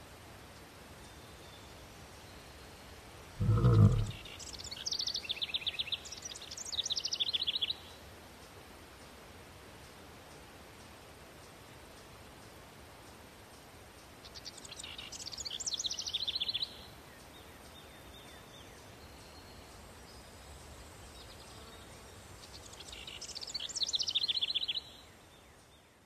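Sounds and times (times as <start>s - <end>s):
songbird trilling song: 14.3s - 19.5s, 22.4s - 26.0s.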